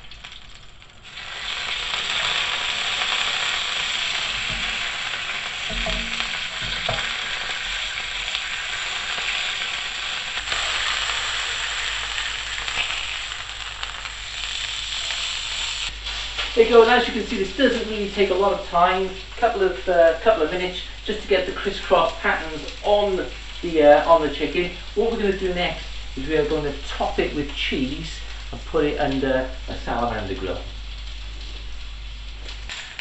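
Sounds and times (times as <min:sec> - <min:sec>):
chicken sizzling on griddle pan: 0:00.0 - 0:33.0
tongs knocking on pan: 0:05.7 - 0:07.3.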